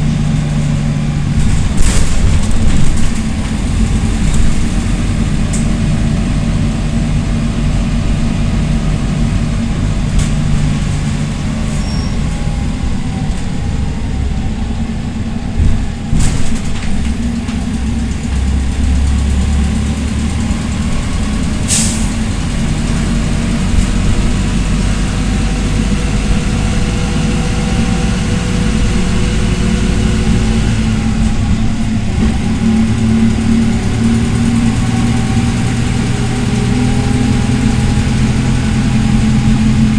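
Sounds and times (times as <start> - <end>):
bus engine running: 0.0 - 39.9
jolting knock: 1.4 - 4.7.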